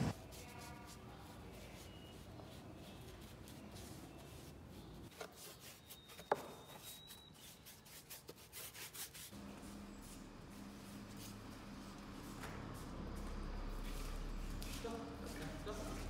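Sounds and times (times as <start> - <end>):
palette knife scraping paste: 0.0 - 9.4.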